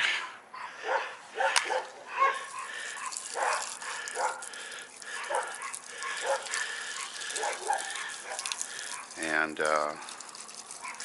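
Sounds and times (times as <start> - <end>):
dog barking: 0.6 - 4.5, 5.1 - 9.3, 9.9 - 10.2.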